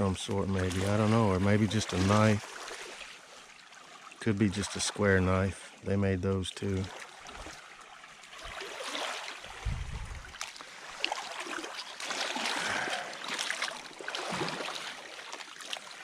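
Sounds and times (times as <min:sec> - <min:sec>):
river water trickling: 0:00.0 - 0:16.0
small clicks and splashes: 0:06.8 - 0:09.6, 0:10.2 - 0:16.0
low rumble: 0:09.6 - 0:10.3.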